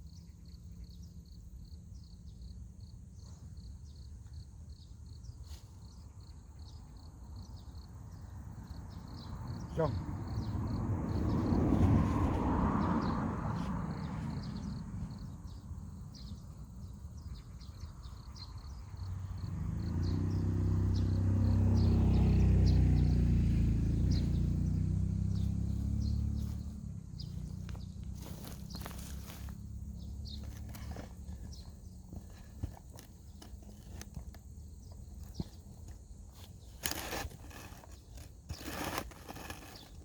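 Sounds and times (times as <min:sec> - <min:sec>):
insects chirping: 0:00.0 - 0:40.0
vehicle engine hum: 0:06.5 - 0:40.0
vehicle rushing past: 0:09.6 - 0:15.4, 0:19.2 - 0:30.8.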